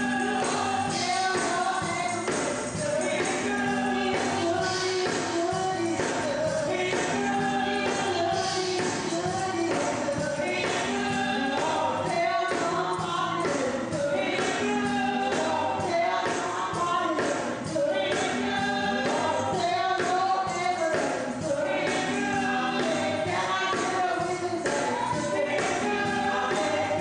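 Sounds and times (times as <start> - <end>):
voices singing gospel: 0.0 - 27.0.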